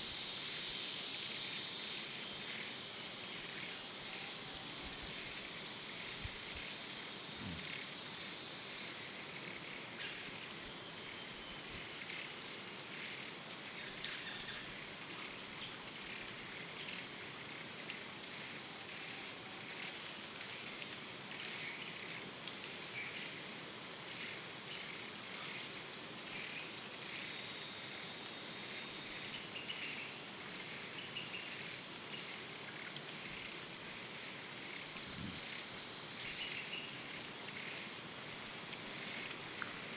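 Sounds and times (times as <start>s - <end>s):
soft even hiss: 0.0s - 10.4s, 28.1s - 39.9s
faint insect chirps: 0.0s - 39.9s
insects droning: 0.0s - 39.9s.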